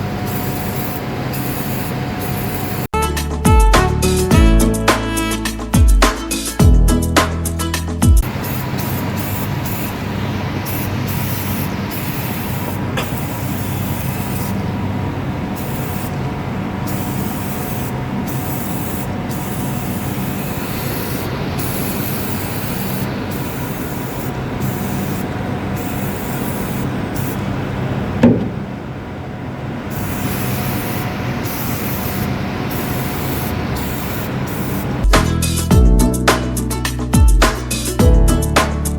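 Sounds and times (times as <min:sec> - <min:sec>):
aerosol can spraying: 0:00.3 - 0:02.9, 0:08.2 - 0:14.6, 0:15.6 - 0:16.1, 0:16.9 - 0:27.4, 0:29.9 - 0:35.4.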